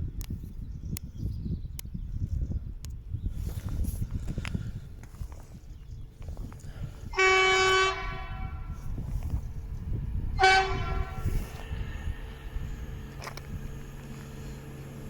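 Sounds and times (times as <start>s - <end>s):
low rumble: 2.4s - 15.0s
train horn blasts: 7.1s - 8.9s, 10.3s - 12.0s.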